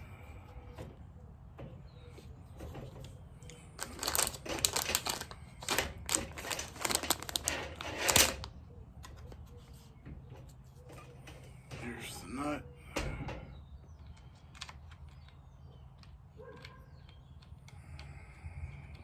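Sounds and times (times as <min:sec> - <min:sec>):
chainsaw chain rattling: 0:03.8 - 0:08.4.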